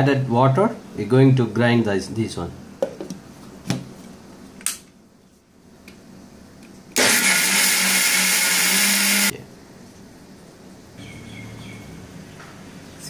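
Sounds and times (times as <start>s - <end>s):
blender grinding: 7.0s - 9.3s.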